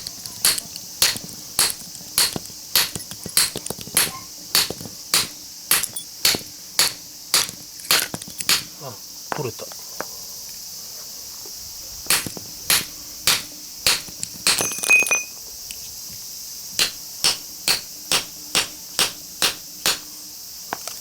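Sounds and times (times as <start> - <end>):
hammer striking steel chisel: 0.0 - 8.7, 16.8 - 20.0
metallic ring: 14.6 - 15.4.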